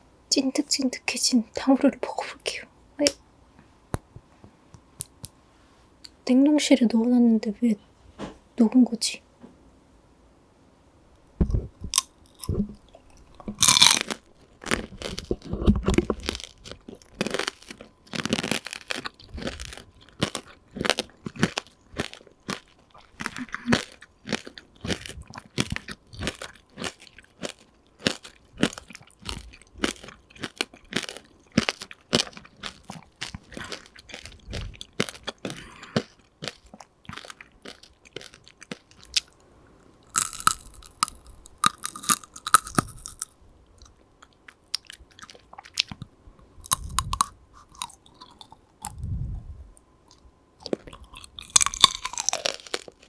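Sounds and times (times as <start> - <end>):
candy glaze crunching in chewing: 11.5 - 46.0, 46.6 - 49.0, 50.1 - 53.0.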